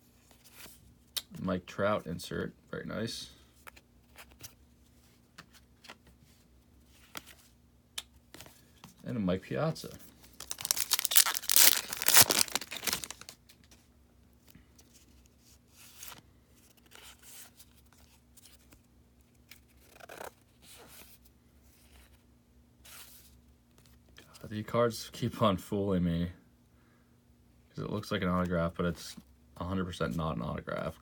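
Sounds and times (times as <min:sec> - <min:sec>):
faint rustles of cards: 0:00.0 - 0:02.4, 0:03.0 - 0:25.5
foil wrapper ripping: 0:10.4 - 0:13.4.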